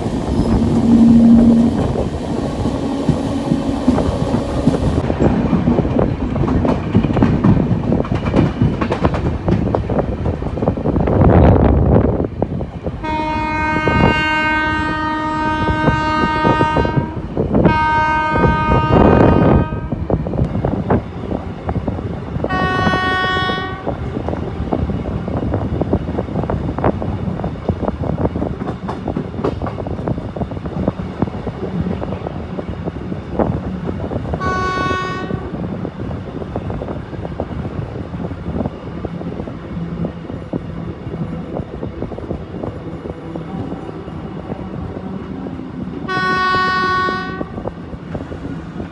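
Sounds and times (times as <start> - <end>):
train wheels rolling on rails: 0.0 - 48.9
train horn blasts: 0.3 - 5.0, 13.0 - 20.2, 22.4 - 24.0, 34.4 - 35.6, 46.0 - 47.6.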